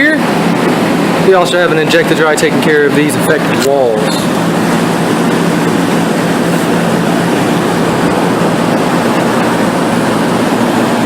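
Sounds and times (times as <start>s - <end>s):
fans blowing air: 0.0s - 11.0s
low hum: 4.0s - 11.0s.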